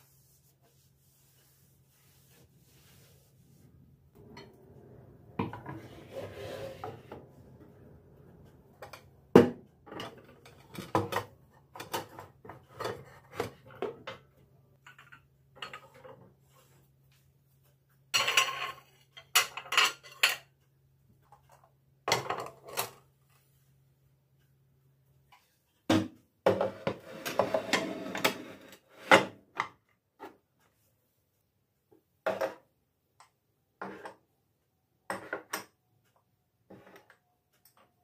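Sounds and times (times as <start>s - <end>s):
dishes and cutlery clattering: 18.2s - 20.5s.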